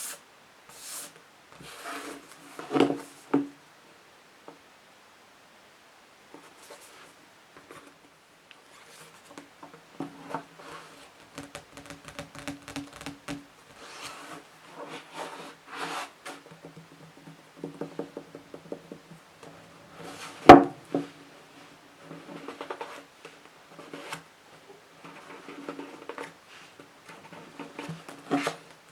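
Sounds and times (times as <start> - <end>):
scratching and tapping on books: 8.8 - 19.2, 22.0 - 24.3, 25.0 - 28.8.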